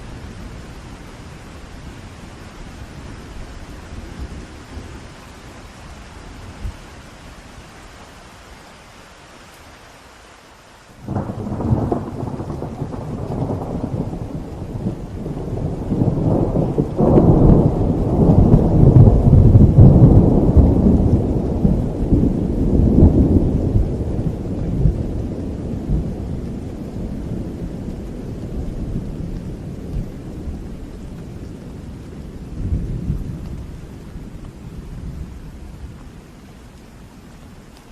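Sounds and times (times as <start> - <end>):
steady rain: 0.0 - 37.9
thunder rumbling: 11.0 - 36.4.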